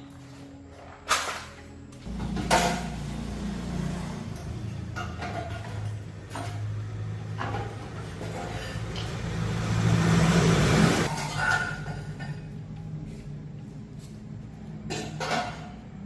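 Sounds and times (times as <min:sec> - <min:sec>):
car engine revving: 0:02.1 - 0:11.1.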